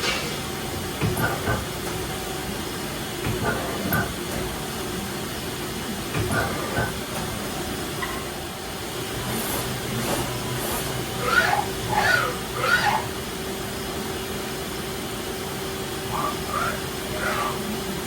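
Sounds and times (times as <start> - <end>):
lathe humming: 9.1 - 13.4
short gliding squeals: 10.6 - 13.2.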